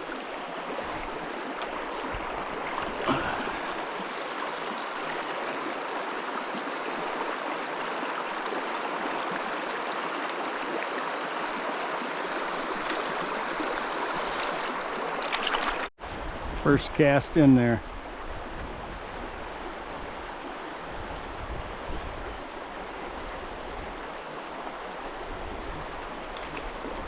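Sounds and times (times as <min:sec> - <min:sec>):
stream rushing over rocks: 0:00.0 - 0:16.3
splash: 0:12.8 - 0:15.9, 0:26.3 - 0:26.8.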